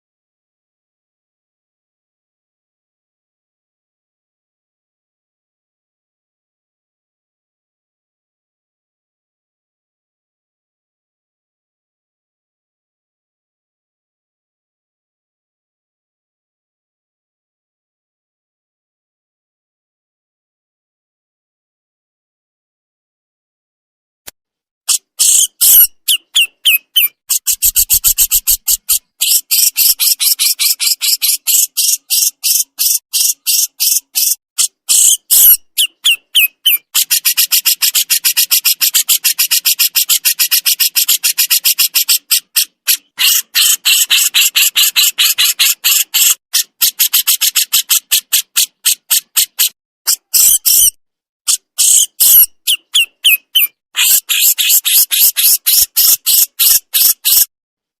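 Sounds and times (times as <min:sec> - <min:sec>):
bird harsh rapid chatter: 0:24.9 - 0:57.5.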